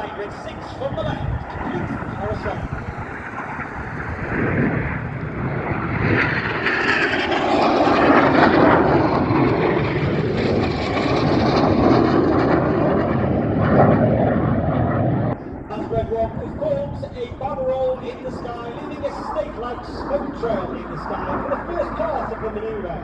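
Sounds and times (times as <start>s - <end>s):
jet roar passing: 0.0s - 23.0s.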